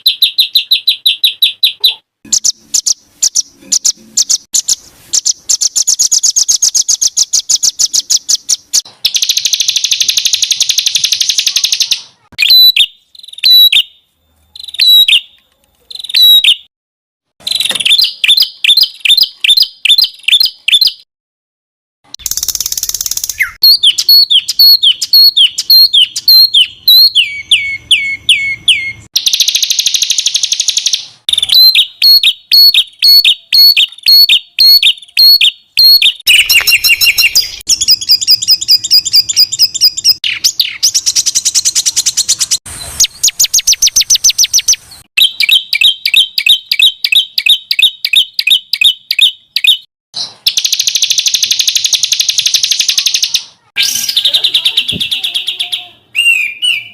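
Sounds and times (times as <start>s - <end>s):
songbird calls: 0.0s - 14.0s, 22.2s - 42.0s.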